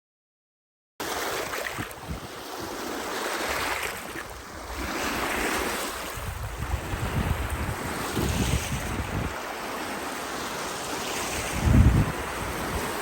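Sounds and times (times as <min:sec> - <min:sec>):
waves breaking on shore: 0:01.0 - 0:13.0
wind gusting on microphone: 0:01.7 - 0:02.9, 0:04.3 - 0:09.8, 0:11.0 - 0:13.0.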